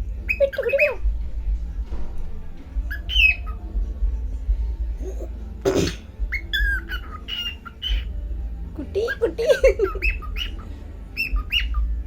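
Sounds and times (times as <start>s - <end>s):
cockatiel chirping and whistling: 0.2s - 1.0s, 2.9s - 3.6s, 6.3s - 8.1s, 9.8s - 12.0s
cockatiel squawk: 6.3s - 8.1s, 9.1s - 12.0s.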